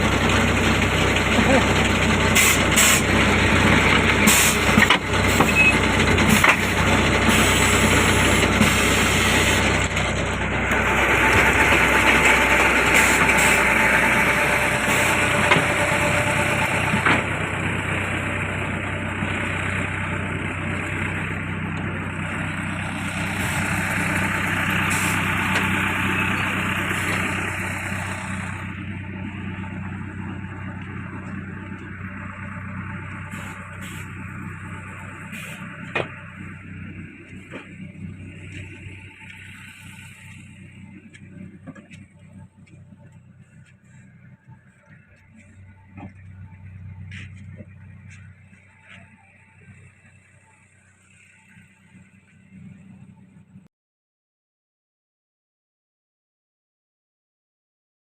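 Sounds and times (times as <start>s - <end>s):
machine engine running: 0.0s - 53.6s.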